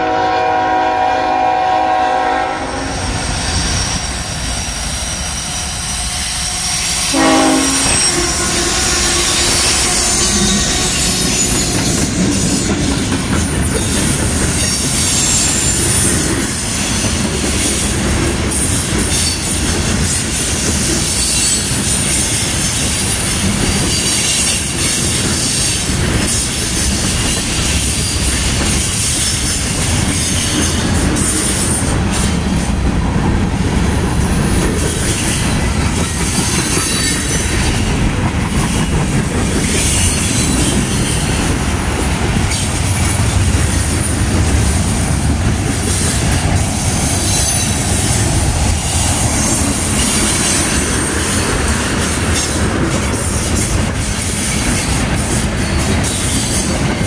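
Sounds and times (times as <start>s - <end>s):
train wheels rumbling on rail: 0.0s - 57.0s
high wheel squeal: 5.4s - 12.9s.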